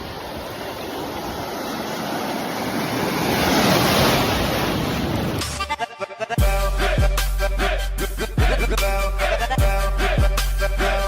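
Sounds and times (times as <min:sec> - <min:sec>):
ocean wave surf: 0:00.0 - 0:05.8.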